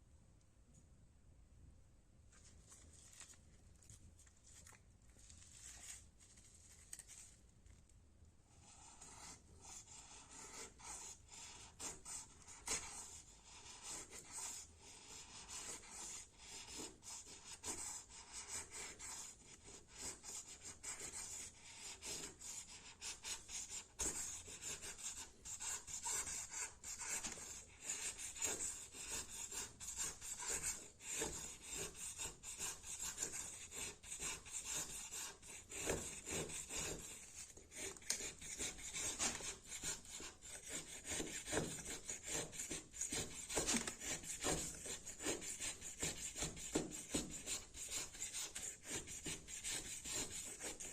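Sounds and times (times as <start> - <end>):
knife scraping wood: 23.6 - 50.9.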